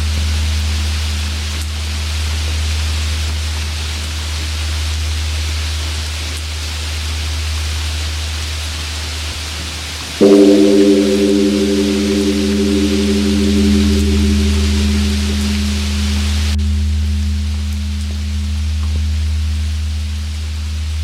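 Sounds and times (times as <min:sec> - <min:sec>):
large temple bell humming: 0:10.2 - 0:20.8.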